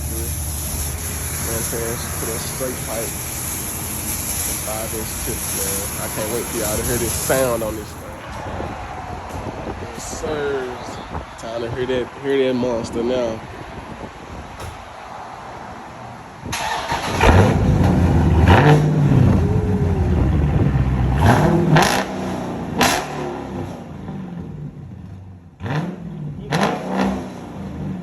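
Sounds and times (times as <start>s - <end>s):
car engine revving: 0.0s - 10.9s, 16.5s - 28.0s.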